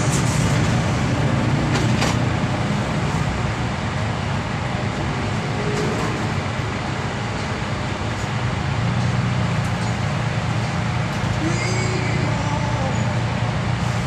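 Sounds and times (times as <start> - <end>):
road vehicle rumble and hiss: 0.0 - 14.0.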